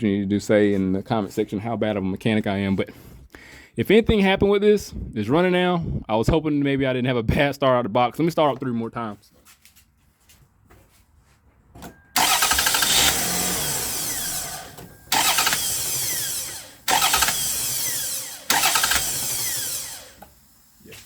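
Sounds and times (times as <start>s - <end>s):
car engine cranking and starting: 11.8s - 21.0s.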